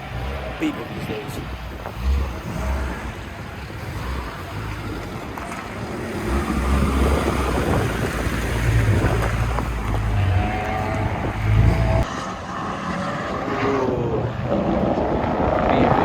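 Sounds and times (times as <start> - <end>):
race car engines: 0.0 - 16.0
wind buffeting microphone: 0.0 - 16.0.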